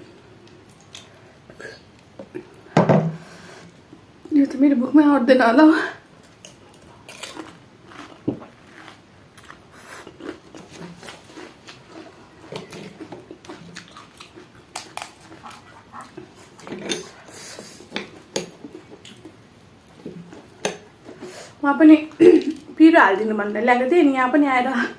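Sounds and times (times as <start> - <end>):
wet chewing: 6.2 - 20.7
crisp shells cracking: 14.0 - 15.3.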